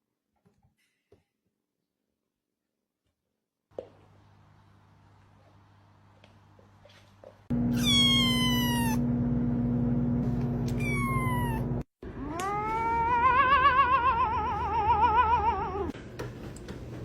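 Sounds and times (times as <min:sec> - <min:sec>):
cat meowing: 0:07.7 - 0:09.0, 0:10.7 - 0:15.9.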